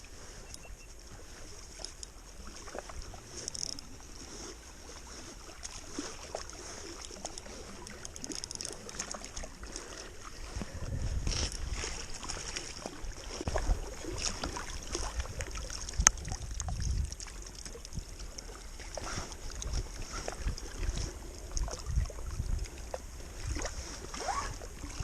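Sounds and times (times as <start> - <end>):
water lapping at kayak: 0.0 - 25.0
knocks and clicks on boat: 1.7 - 3.9, 5.6 - 9.4
wind on microphone: 5.1 - 25.0.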